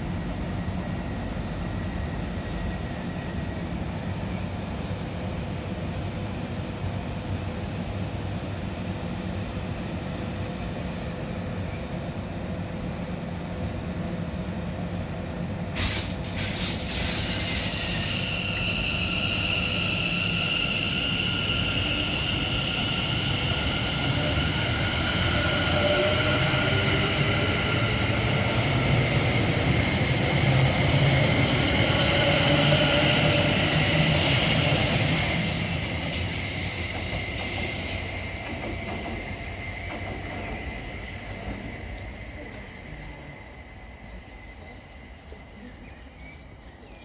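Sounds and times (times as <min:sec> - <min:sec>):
wheel and rail noise: 0:15.7 - 0:47.0.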